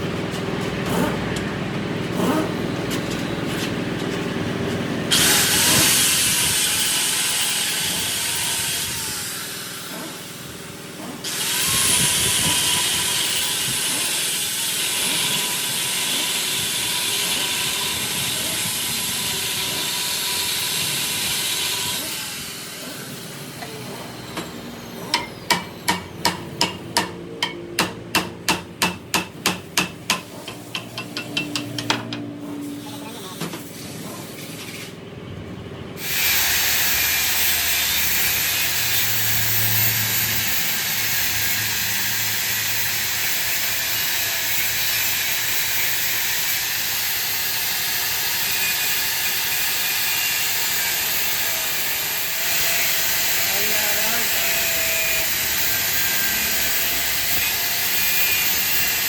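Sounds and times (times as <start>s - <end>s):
power tool hissing: 5.1s - 26.0s, 36.0s - 59.0s.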